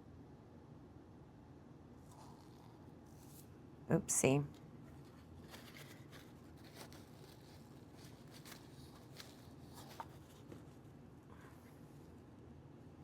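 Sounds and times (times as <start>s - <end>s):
faint handling clicks and rustles: 4.5s - 12.2s.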